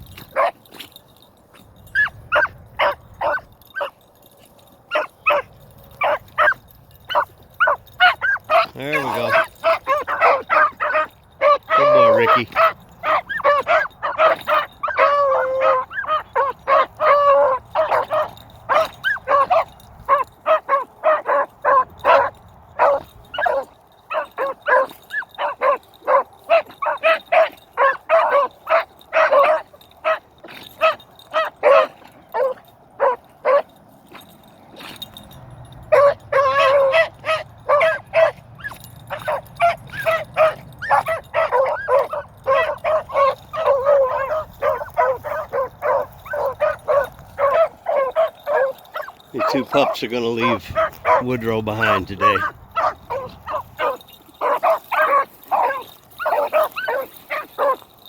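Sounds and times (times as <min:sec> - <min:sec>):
wind rumble on microphone: 0:00.0 - 0:00.4
dogs yipping and baying: 0:00.0 - 0:58.0.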